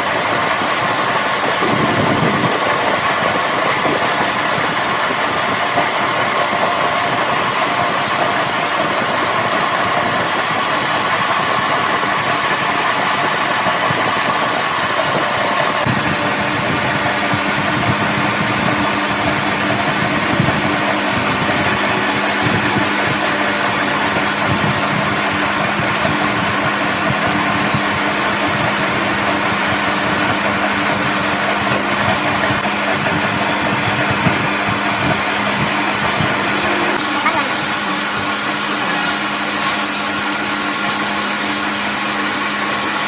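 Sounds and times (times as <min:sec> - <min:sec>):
engine droning: 0:00.0 - 0:43.0.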